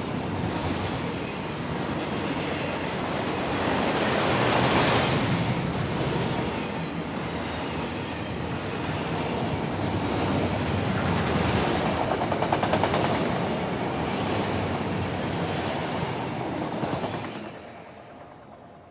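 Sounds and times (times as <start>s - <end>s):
freight train rumble: 0.0s - 18.9s
train wheels clicking over rail joints: 11.8s - 13.5s.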